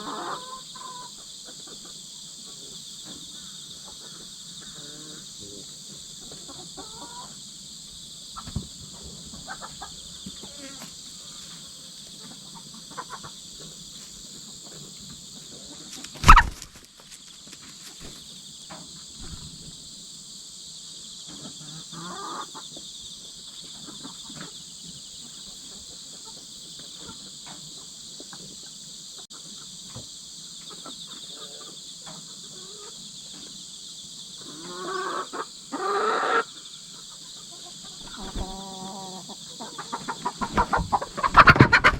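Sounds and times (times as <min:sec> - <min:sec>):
hens clucking and squawking: 0:00.0 - 0:16.8, 0:21.3 - 0:22.9, 0:23.6 - 0:27.7, 0:30.6 - 0:33.5, 0:34.4 - 0:41.9
insect chorus: 0:00.0 - 0:41.9.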